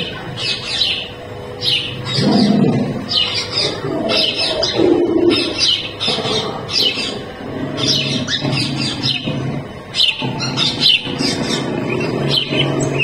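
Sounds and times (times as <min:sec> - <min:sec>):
bird chirping calls: 0:00.0 - 0:13.0
bird cooing: 0:00.0 - 0:13.0.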